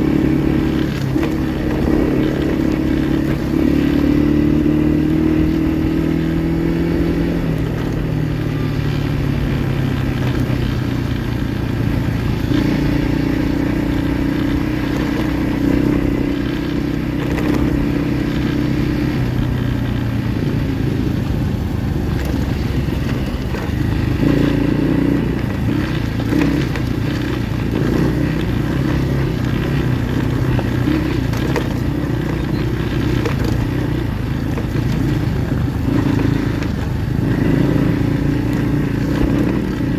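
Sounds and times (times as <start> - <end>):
pit bike engine revving: 0.0 - 39.9
rattling and scraping: 21.6 - 39.9.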